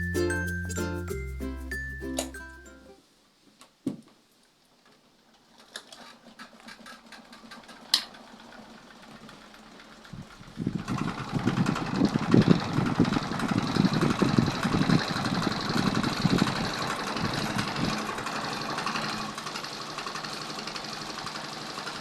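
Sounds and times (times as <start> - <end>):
fast mechanical clatter: 5.8 - 22.0
fan motor humming: 10.0 - 21.1.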